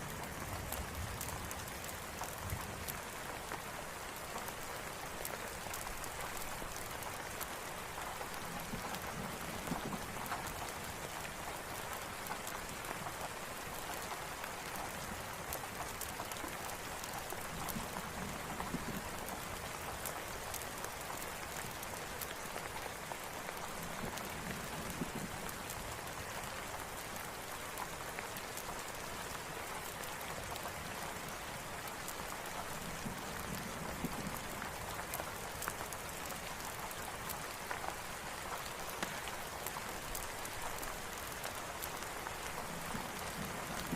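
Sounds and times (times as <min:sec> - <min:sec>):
steady rain hiss: 0:00.0 - 0:43.9
campfire crackling: 0:00.1 - 0:43.9.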